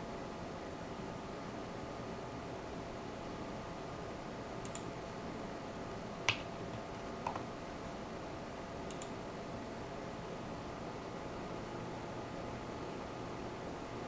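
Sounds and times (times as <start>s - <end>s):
mouse clicks: 4.6s - 4.9s, 6.3s - 6.5s, 8.9s - 9.2s.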